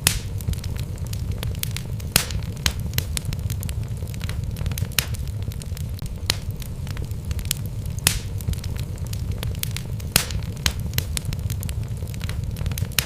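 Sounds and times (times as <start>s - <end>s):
crackles and pops of logs: 0.0s - 13.0s
wood fire burning: 0.0s - 13.0s.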